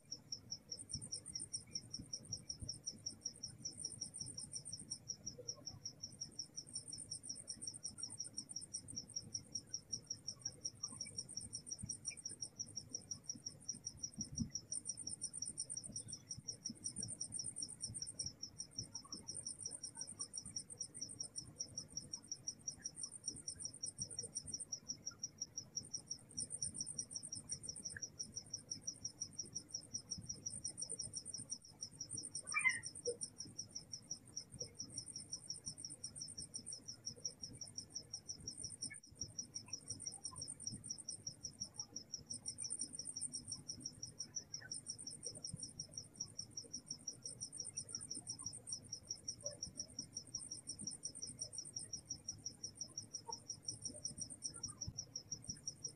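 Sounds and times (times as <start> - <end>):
insect chirping in rapid pulse: 0.0 - 55.9
insect trilling: 29.9 - 37.2.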